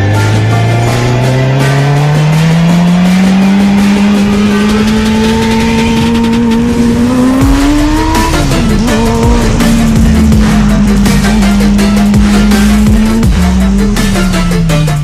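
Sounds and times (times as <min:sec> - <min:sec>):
vehicle engine accelerating: 0:00.0 - 0:15.0.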